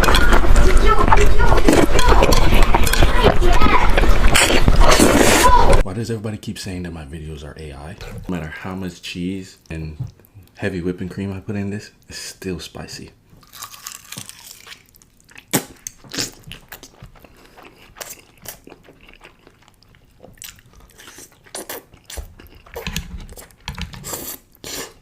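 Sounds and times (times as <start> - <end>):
wet chewing smacks and clicks: 13.6 - 24.9.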